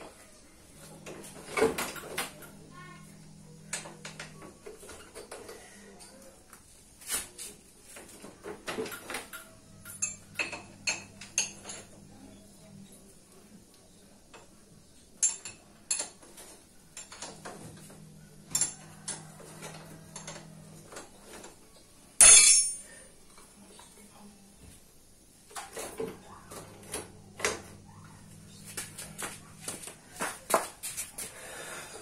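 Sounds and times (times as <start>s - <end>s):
faint low hum: 0.0s - 32.0s
metal tools clinking: 8.9s - 11.9s, 22.2s - 23.1s.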